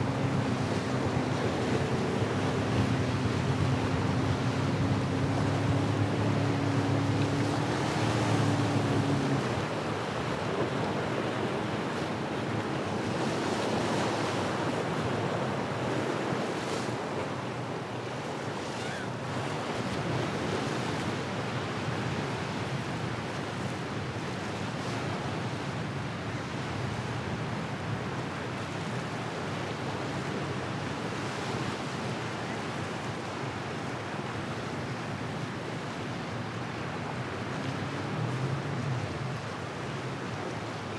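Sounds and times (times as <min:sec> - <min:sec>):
low engine hum: 0:00.0 - 0:25.7, 0:34.2 - 0:40.9
waves and surf washing: 0:00.0 - 0:40.9.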